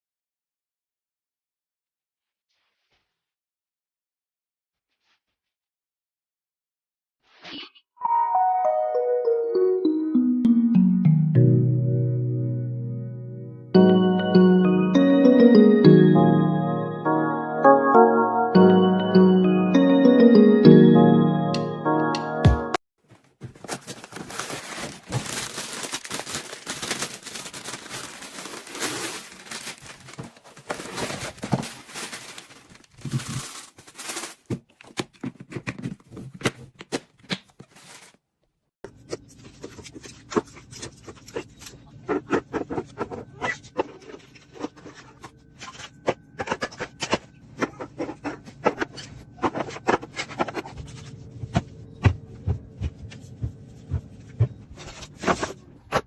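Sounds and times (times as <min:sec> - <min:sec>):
food packaging rustling and clicking: 0:23.1 - 0:38.2.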